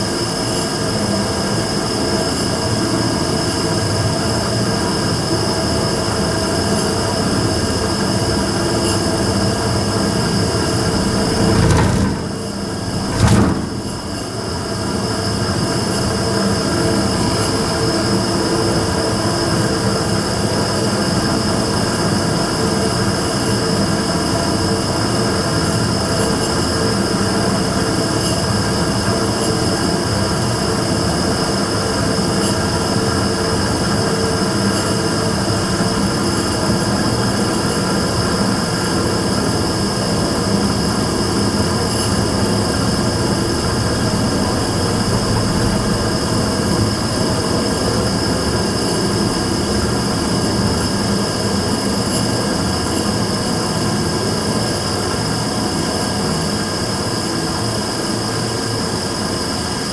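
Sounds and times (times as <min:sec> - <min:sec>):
burner roaring: 0:10.8 - 0:14.1.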